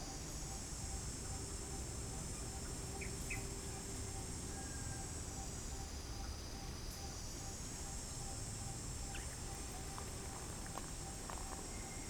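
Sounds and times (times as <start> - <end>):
faint clicks: 9.8 - 11.7.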